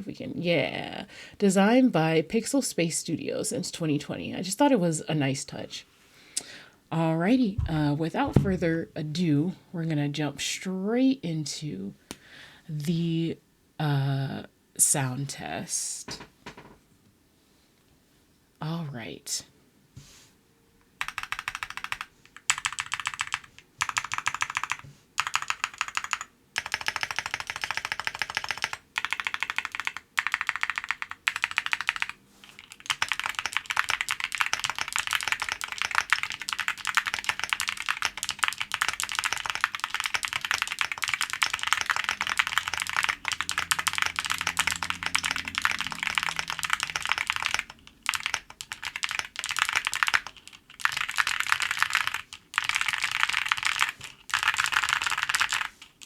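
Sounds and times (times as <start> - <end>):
mechanical keyboard typing: 21.0 - 56.0.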